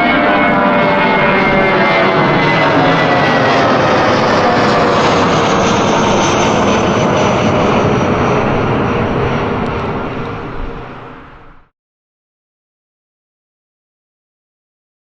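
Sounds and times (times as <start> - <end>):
jet engines roaring at takeoff: 0.0 - 11.7.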